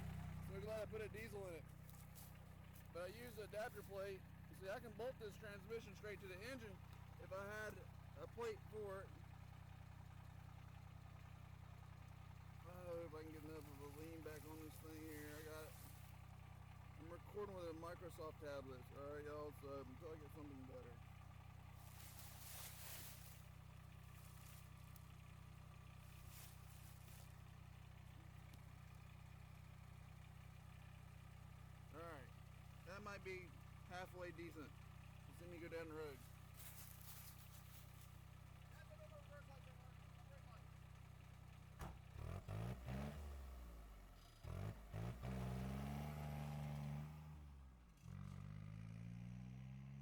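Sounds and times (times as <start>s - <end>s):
diesel truck engine revving: 0.0s - 1.6s, 41.7s - 50.0s
diesel engine idling: 0.0s - 48.0s.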